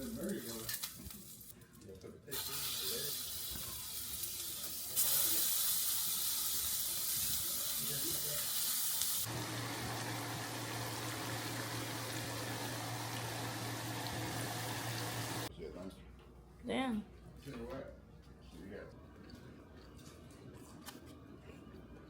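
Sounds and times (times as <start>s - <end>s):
patties sizzling in a hot pan: 2.3s - 15.5s.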